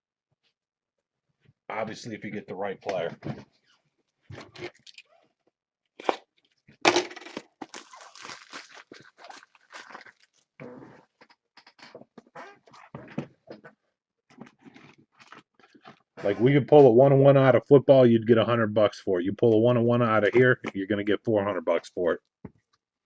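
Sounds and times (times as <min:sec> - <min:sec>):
cards and foil wrappers crinkling: 0:06.9 - 0:10.5.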